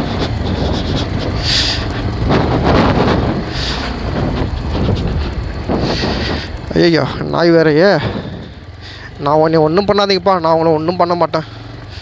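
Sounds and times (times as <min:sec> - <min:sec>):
wind noise on microphone: 0:00.0 - 0:08.7
motorcycle engine running: 0:00.0 - 0:12.0.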